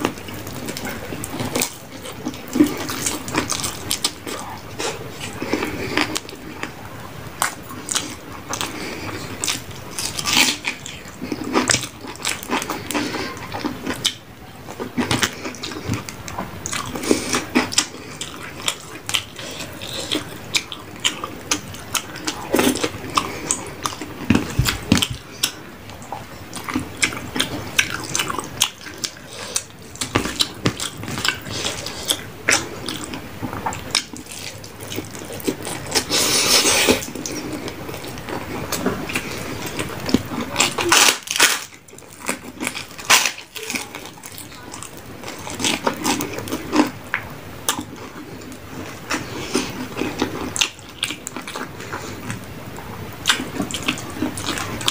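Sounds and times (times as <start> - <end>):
wet chewing and mouth smacks: 7.4 - 52.4.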